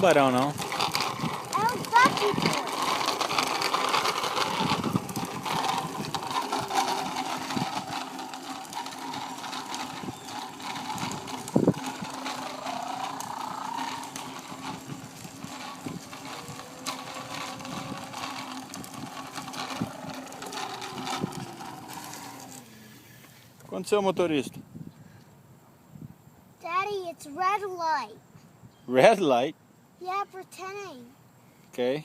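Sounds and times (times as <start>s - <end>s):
bicycle chain ratcheting tick: 0.0s - 22.8s.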